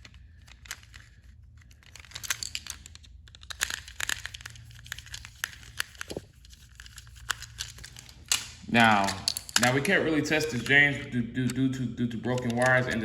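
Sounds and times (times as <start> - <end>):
toy train clicking and rattling: 0.0 - 10.8, 12.3 - 13.0
faint low hum: 0.0 - 13.0.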